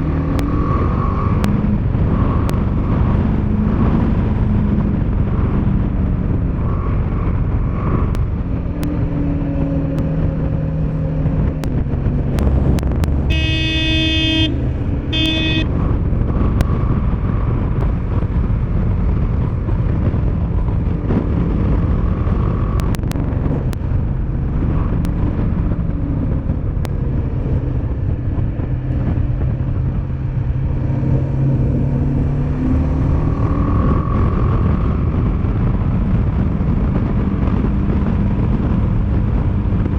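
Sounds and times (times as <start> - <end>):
motorcycle engine revving: 0.0 - 39.9
wind noise: 0.0 - 39.9
vehicle horn honking: 13.2 - 15.8.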